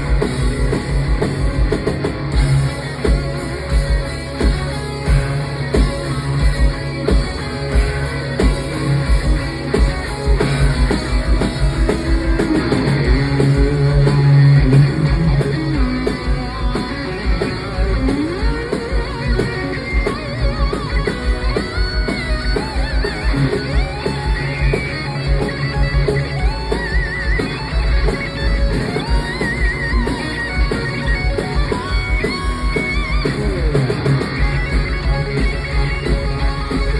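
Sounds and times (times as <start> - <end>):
bass guitar: 0.0 - 36.9
bending lead guitar line: 0.0 - 36.9
distorted electric guitars: 0.0 - 36.9.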